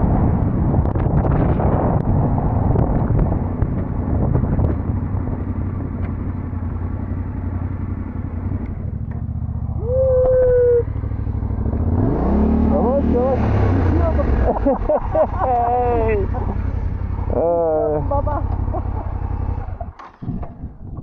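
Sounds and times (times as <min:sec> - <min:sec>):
wind noise: 0:00.0 - 0:07.1, 0:13.4 - 0:21.0
motorcycle engine running: 0:00.0 - 0:21.0.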